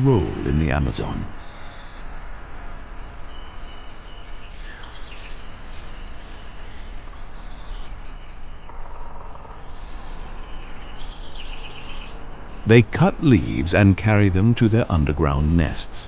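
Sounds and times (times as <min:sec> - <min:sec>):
birds chirping and calling: 0:07.2 - 0:16.0.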